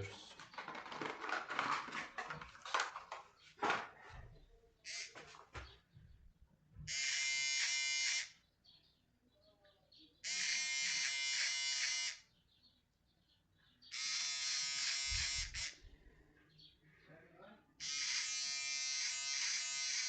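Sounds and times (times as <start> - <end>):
electric shaver buzzing: 6.9 - 8.4, 10.2 - 12.2, 13.9 - 15.8, 17.8 - 20.0.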